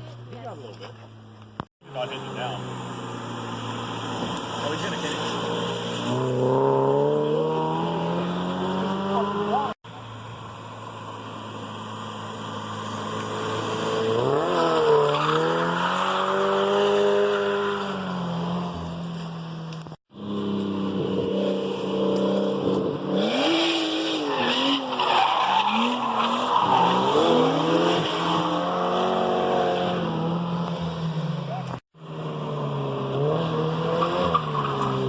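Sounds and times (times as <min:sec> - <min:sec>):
car engine revving hard: 0:02.1 - 0:09.8, 0:12.9 - 0:18.7, 0:20.3 - 0:24.9, 0:25.7 - 0:30.7.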